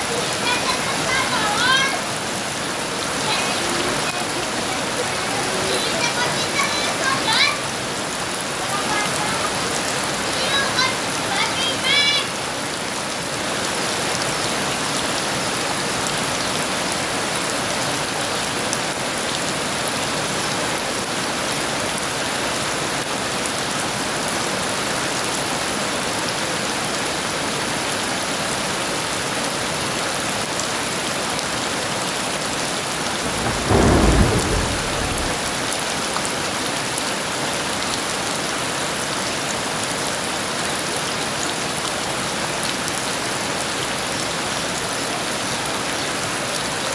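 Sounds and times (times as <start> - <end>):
heavy rain: 0.0 - 46.9
thunderclap: 32.9 - 36.4.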